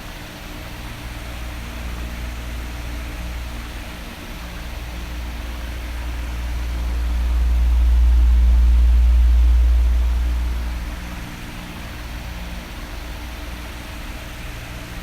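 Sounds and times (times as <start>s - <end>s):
electric fan running: 0.0s - 15.0s
deep low rumble: 5.5s - 12.6s.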